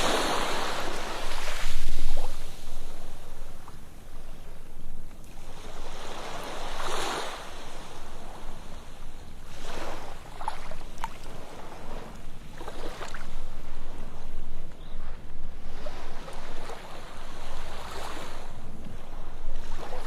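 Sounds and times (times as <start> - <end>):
ocean surf breaking on beach: 0.0 - 14.4.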